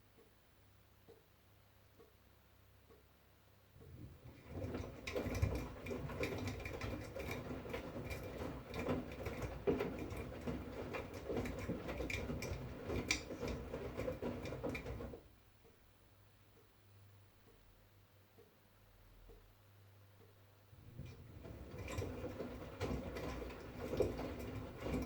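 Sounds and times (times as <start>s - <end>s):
washing machine drum tumbling: 3.8s - 15.3s, 20.8s - 25.0s.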